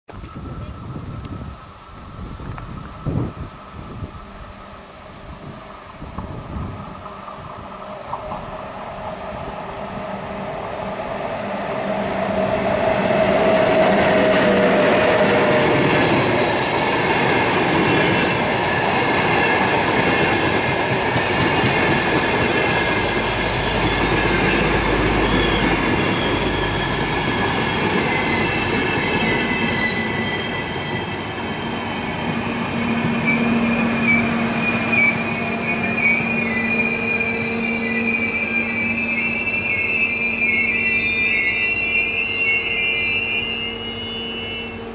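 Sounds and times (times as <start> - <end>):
train wheels on rails: 0.2 - 44.9
wheels squealing: 22.4 - 44.9.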